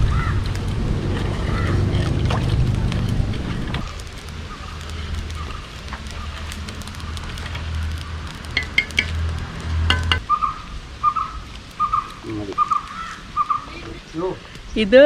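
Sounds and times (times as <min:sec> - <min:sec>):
bird calling: 0:00.0 - 0:14.6
wind rumble on microphone: 0:00.0 - 0:15.0
utensil clinking on metal pot: 0:08.4 - 0:09.2, 0:09.9 - 0:10.2.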